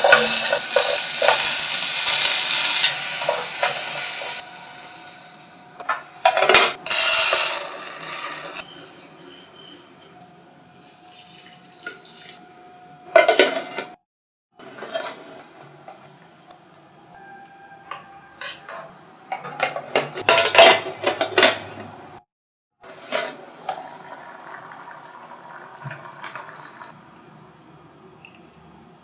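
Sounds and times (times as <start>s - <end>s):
utensils clinking on metal mess tin: 0.0s - 1.7s, 6.2s - 9.8s, 19.4s - 21.6s.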